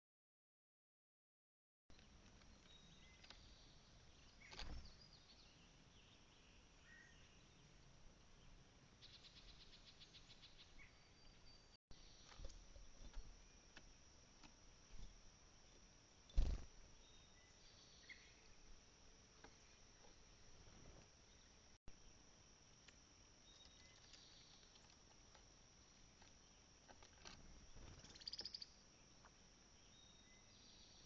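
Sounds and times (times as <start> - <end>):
bird rapid trill: 16.3 - 18.3, 27.7 - 28.8
distant bird chirps: 25.8 - 31.0.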